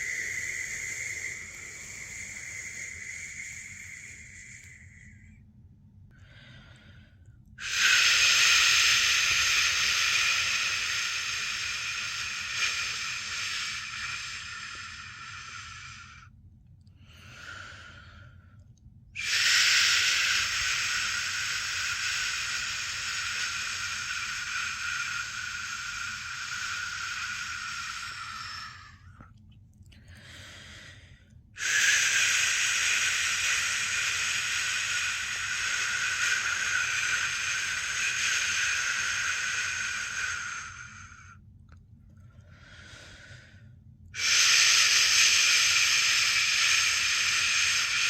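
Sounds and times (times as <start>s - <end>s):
soft breath: 0.0s - 5.5s, 6.1s - 48.0s
person shushing: 19.2s - 29.1s, 31.6s - 41.2s, 44.2s - 48.0s.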